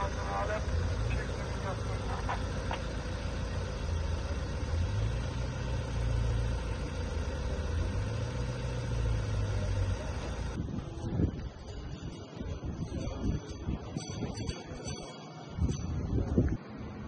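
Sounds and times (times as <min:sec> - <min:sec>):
vehicle engine idling: 0:00.0 - 0:11.8.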